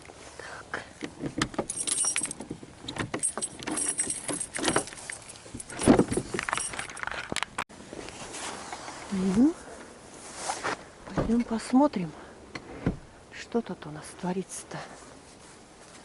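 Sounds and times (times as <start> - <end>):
metal keys jangling: 1.6 - 7.5.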